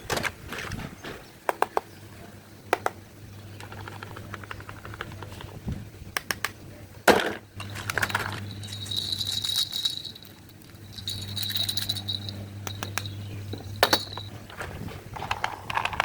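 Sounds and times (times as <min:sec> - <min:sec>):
plastic toys being handled: 0:07.6 - 0:13.0, 0:13.8 - 0:16.0
toy clatter: 0:07.6 - 0:14.3, 0:15.2 - 0:16.0
toy gear motor whirring: 0:07.7 - 0:13.1.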